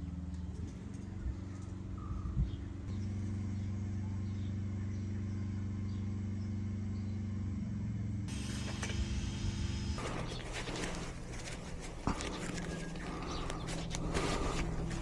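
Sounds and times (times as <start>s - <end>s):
motorcycle engine running: 2.9s - 15.0s
hiss: 8.3s - 11.3s.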